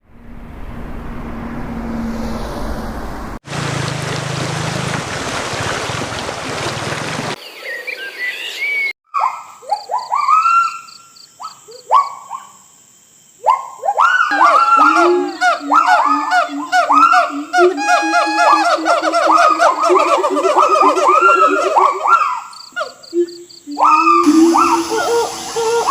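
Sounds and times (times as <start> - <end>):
bird chirps: 7.4 - 12.6
high insect whine: 9.9 - 25.9
calls sliding upward in pitch: 14.3 - 22.4, 23.8 - 25.9.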